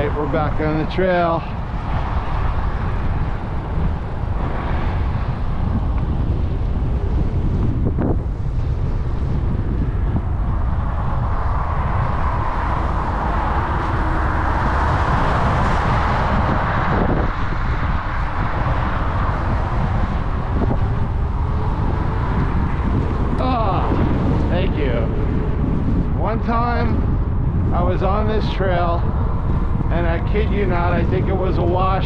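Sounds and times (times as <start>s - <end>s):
wind buffeting microphone: 0.0s - 32.0s
bike tyre noise on trail: 1.0s - 26.3s.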